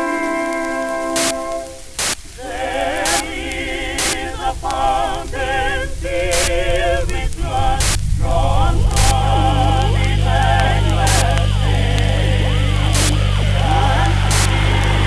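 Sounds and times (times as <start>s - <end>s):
voices singing with vibrato: 0.0s - 15.0s
deep bass: 2.3s - 15.0s.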